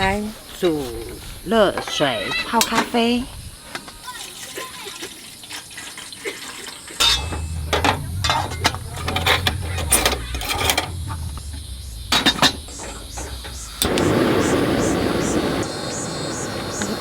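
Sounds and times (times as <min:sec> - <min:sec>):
cookware clicking and knocking: 0:07.0 - 0:10.9
low steady hum: 0:07.0 - 0:15.8.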